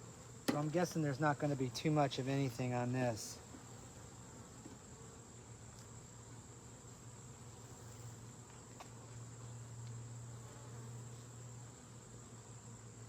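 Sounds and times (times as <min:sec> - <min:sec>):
honeybees buzzing: 0:00.0 - 0:13.0
faint ticks: 0:09.8 - 0:10.0.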